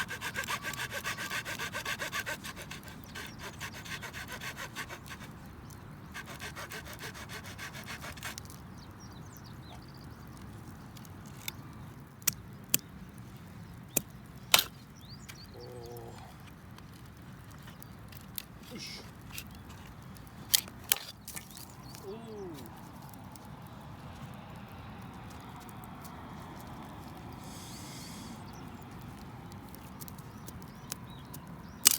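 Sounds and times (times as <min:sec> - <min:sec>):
hand saw cutting wood: 0:00.0 - 0:05.4, 0:06.1 - 0:08.5
sharp wood cracks: 0:29.2 - 0:31.9.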